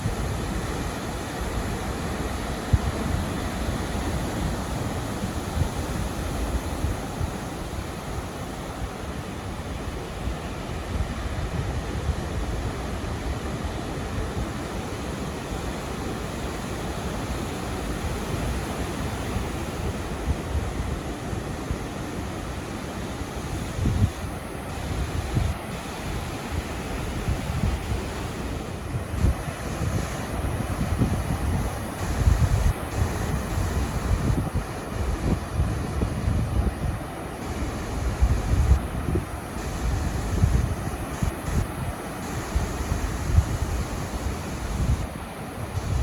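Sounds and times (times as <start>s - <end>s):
ocean surf washing in: 0.0s - 46.0s
wind buffeting microphone: 23.7s - 46.0s.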